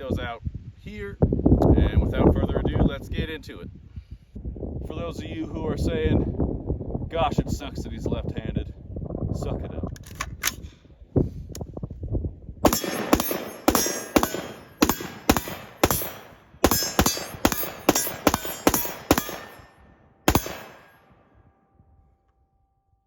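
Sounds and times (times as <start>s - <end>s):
rifle shots echoing: 12.6s - 21.2s.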